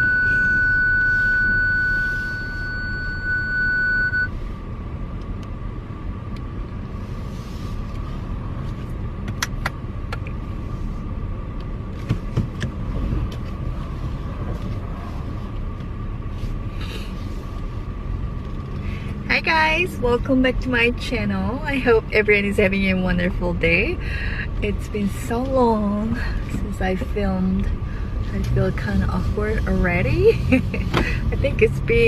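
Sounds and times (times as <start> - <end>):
loud electronic tone: 0.0 - 4.3
car road and engine rumble: 0.0 - 32.0.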